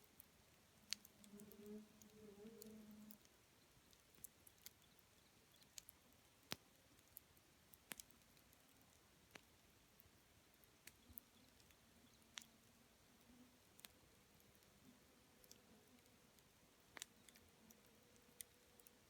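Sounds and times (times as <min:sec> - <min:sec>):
wood fire crackling: 0:00.1 - 0:02.2, 0:02.9 - 0:19.0
burning wood popping: 0:16.9 - 0:17.8.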